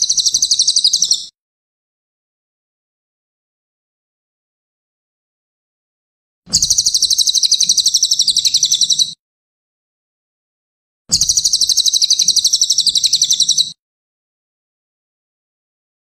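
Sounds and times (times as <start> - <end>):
bird trilling: 0.0 - 1.3, 6.5 - 9.2, 11.1 - 13.8.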